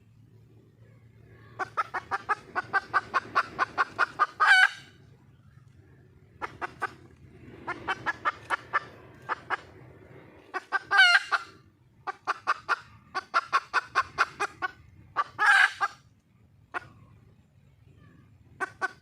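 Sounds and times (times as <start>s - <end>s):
hen cackling call: 1.4s - 5.0s, 6.4s - 9.7s, 10.5s - 16.0s
hen clucking: 1.4s - 5.1s, 6.4s - 16.1s, 16.7s - 17.2s, 18.6s - 19.0s.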